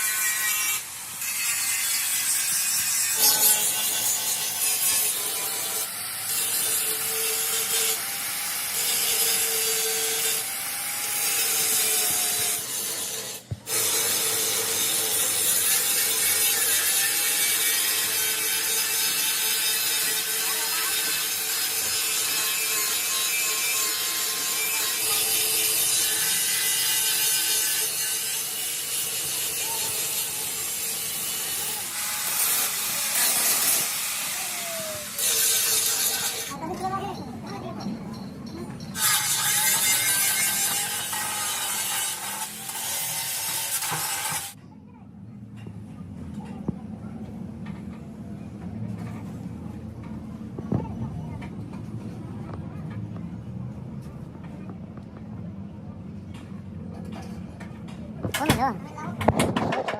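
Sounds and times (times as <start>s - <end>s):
rasping scraping tool: 0.0s - 36.5s, 39.0s - 44.6s.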